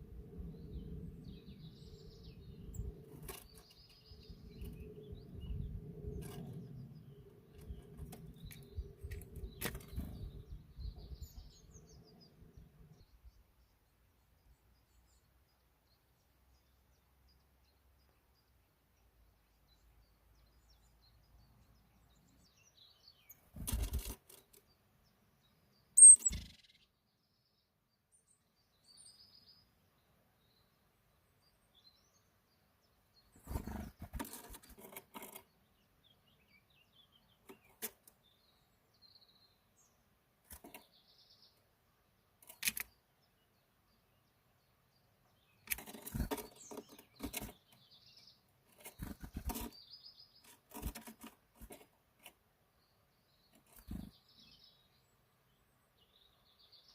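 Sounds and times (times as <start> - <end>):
bird chirp falling in pitch: 26.0 - 26.8.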